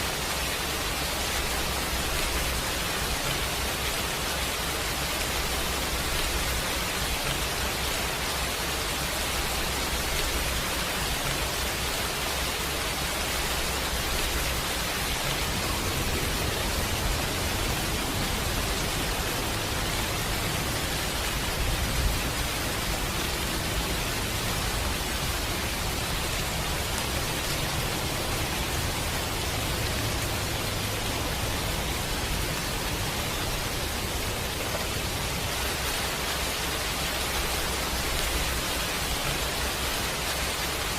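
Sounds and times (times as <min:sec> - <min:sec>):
heavy rain hiss: 0:00.0 - 0:40.9.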